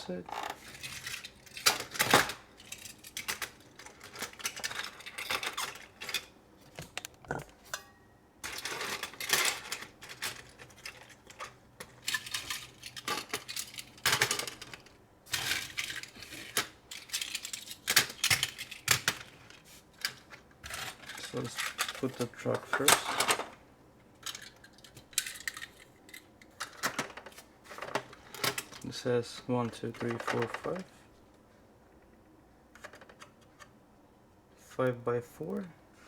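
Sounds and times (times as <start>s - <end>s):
plastic toy pieces clattering: 0.3s - 6.3s, 8.4s - 19.4s, 20.0s - 23.6s, 24.2s - 28.9s, 29.7s - 30.9s.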